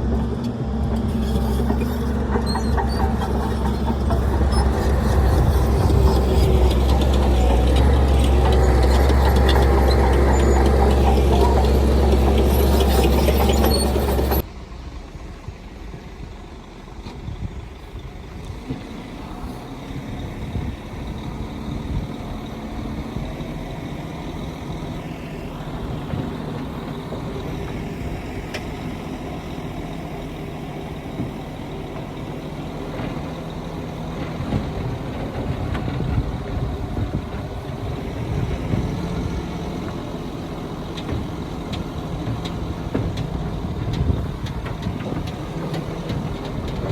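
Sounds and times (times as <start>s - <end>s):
diesel machinery engine drone: 0.0s - 46.9s.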